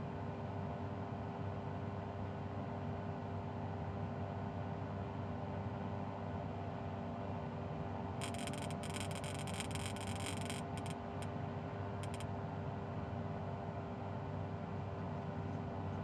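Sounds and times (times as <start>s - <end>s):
crackling clicks: 8.2s - 11.3s, 12.0s - 12.2s
faint steady hum: 8.2s - 12.3s.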